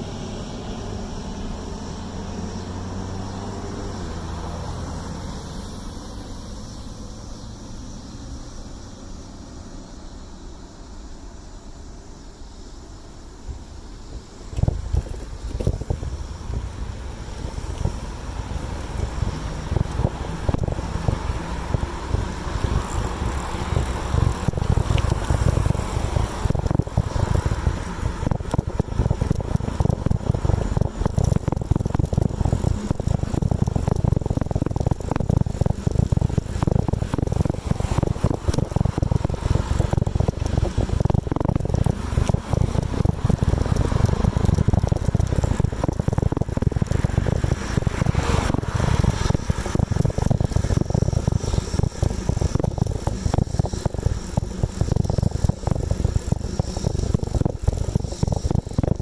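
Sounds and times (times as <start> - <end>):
bicycle rattles and clicks: 12.5 - 59.0
wind buffeting microphone: 13.4 - 59.0.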